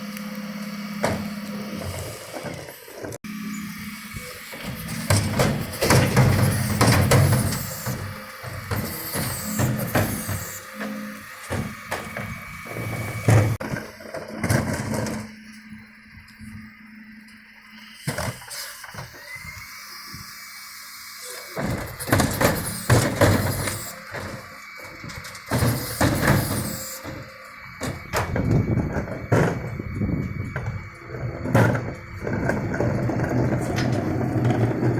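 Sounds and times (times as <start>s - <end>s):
refuse truck engine running: 0.0s - 34.9s
wheelie bins clattering and banging: 0.9s - 3.2s, 4.1s - 15.4s, 21.4s - 34.9s.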